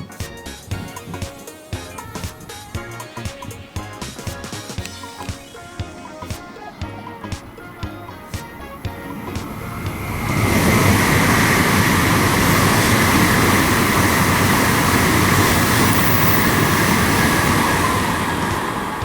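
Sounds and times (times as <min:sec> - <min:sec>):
train passing at speed: 0:07.4 - 0:19.0.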